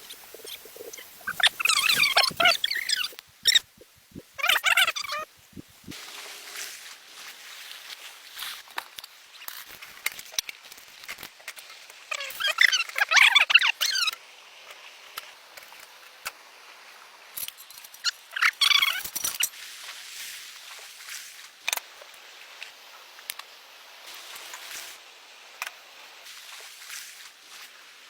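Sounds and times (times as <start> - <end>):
high animal calls: 0.0 - 5.9.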